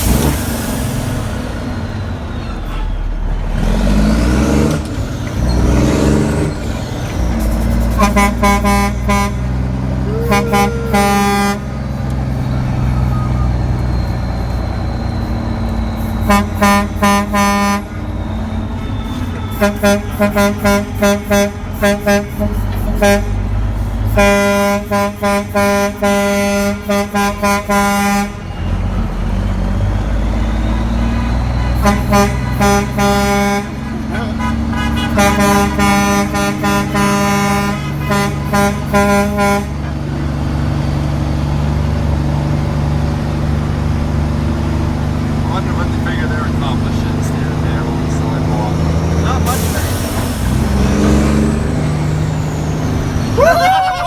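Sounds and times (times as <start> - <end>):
truck engine running: 0.0 - 54.0
truck horn short toots: 2.4 - 3.4, 7.8 - 13.8, 16.0 - 18.2, 18.8 - 28.5, 30.9 - 40.1.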